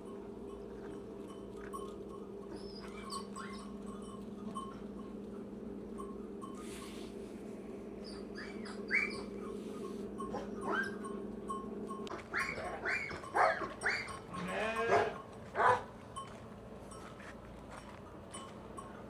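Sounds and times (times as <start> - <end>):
low steady hum: 0.0 - 19.0
lambs bleating: 13.8 - 15.2.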